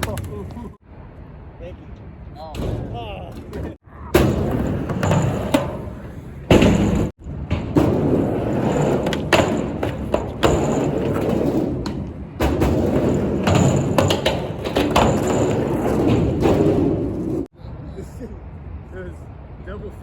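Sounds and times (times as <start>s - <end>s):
skateboard knocks and thuds: 3.4s - 17.5s
skateboard wheels rumbling: 3.5s - 17.5s.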